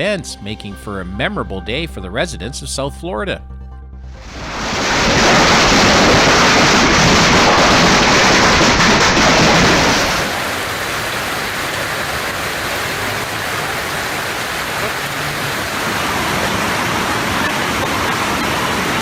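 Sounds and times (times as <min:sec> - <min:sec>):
heavy rain downpour: 0:04.2 - 0:19.0.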